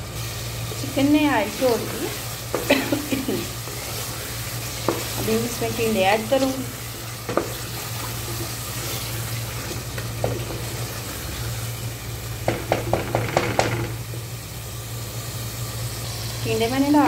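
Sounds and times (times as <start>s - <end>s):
meat sizzling in oil: 0.0s - 17.0s
wooden spoon stirring: 0.8s - 11.4s
spoon knocking against pot: 12.4s - 14.0s.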